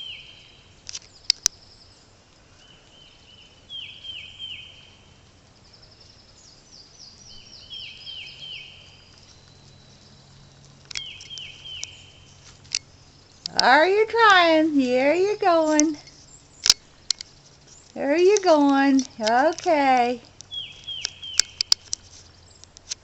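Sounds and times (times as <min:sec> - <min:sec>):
bird chirping: 0:00.0 - 0:22.9
sharp clicks: 0:00.8 - 0:01.6, 0:10.6 - 0:12.0, 0:12.6 - 0:14.3, 0:15.2 - 0:23.0.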